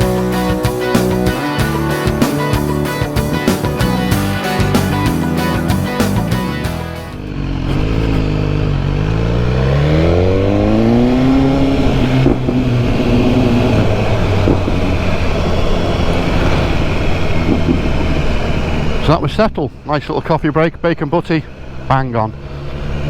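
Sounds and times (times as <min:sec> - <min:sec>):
motorcycle engine pulling away: 0:00.0 - 0:19.1
wind rush: 0:11.0 - 0:19.1.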